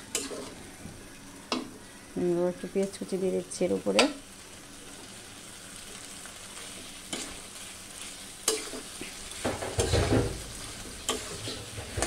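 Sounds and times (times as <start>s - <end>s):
food sizzling in a pan: 0.0s - 12.0s
spatula scraping through food: 11.0s - 12.0s.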